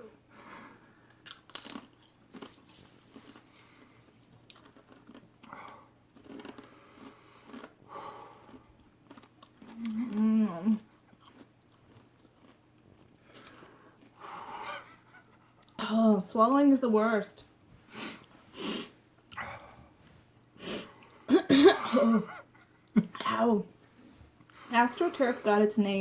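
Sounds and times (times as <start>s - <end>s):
person crunching potato chip: 1.1s - 3.8s, 4.4s - 7.8s, 8.4s - 10.5s, 11.1s - 14.2s.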